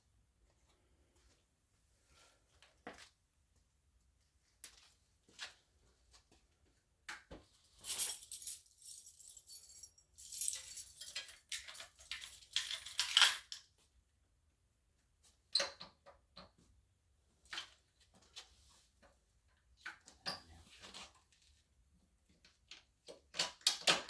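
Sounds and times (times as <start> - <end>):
metallic jingling and clattering: 7.8 - 13.6.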